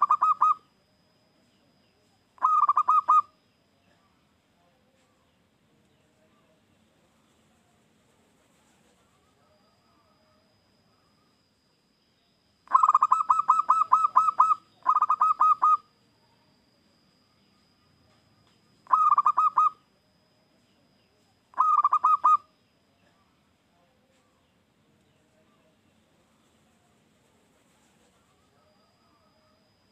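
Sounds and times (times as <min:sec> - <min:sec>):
dove cooing: 0:00.0 - 0:00.6, 0:02.4 - 0:03.3, 0:12.7 - 0:15.9, 0:18.9 - 0:19.8, 0:21.5 - 0:22.5.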